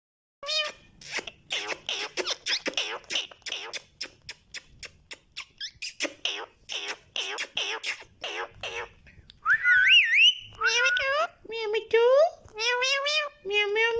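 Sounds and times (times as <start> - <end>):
parrot chattering squeaky calls: 0.4 - 9.0, 9.6 - 11.3.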